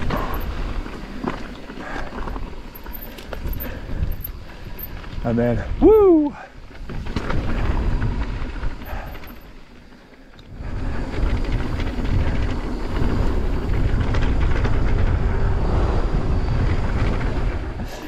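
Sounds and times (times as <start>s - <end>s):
bike tyre and frame rattle: 0.0s - 18.0s
wind on microphone: 10.5s - 18.0s.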